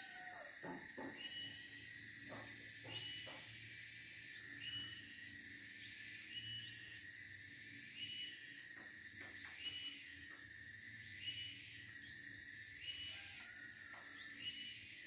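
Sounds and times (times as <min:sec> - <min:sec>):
bird whistled calls: 0:00.0 - 0:00.4.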